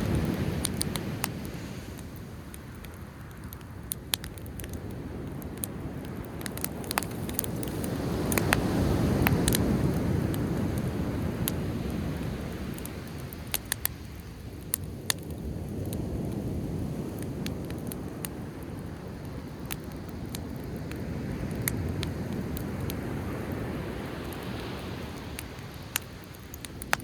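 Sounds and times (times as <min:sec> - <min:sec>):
sea waves rushing: 0:00.0 - 0:02.3, 0:06.5 - 0:13.5
bonfire crackling and popping: 0:00.0 - 0:27.0.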